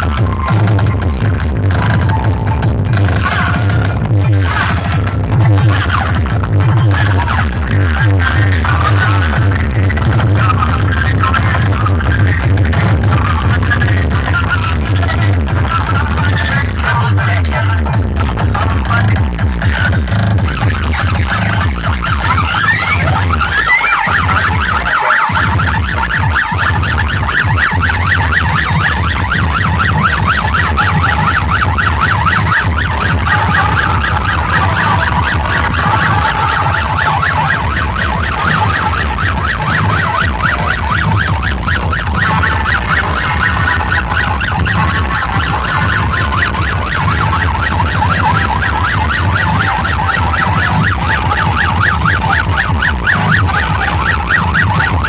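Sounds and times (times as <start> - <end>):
electronic dance music: 0.0 - 55.0
warbling siren effect: 20.5 - 55.0.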